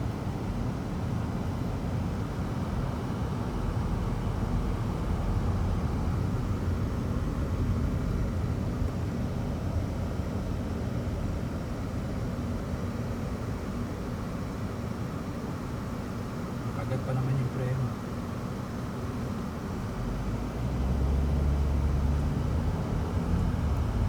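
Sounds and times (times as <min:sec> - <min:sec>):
road traffic rumble: 0:19.6 - 0:24.0.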